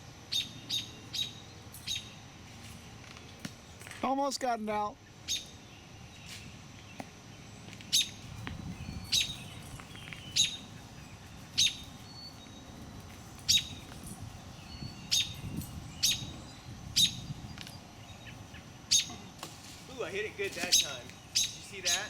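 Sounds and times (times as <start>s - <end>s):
bird alarm chirps: 0.2s - 2.4s, 5.0s - 12.8s, 13.4s - 19.4s, 20.4s - 22.0s.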